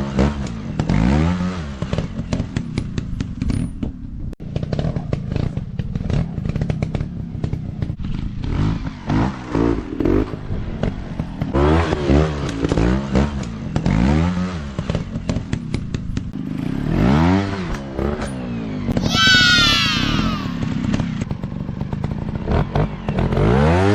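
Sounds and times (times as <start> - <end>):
dirt bike engines revving: 18.9 - 21.8.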